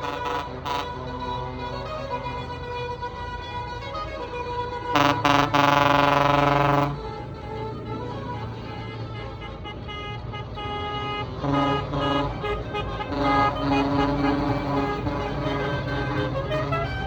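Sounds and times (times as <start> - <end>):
tractor engines humming: 0.0 - 17.0
tune of pitched notes: 5.0 - 7.1.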